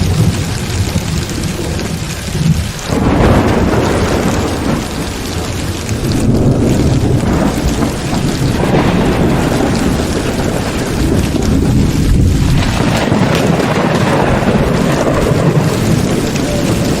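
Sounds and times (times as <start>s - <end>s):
heavy rain falling: 0.0s - 17.0s
rolling thunder: 0.0s - 17.0s.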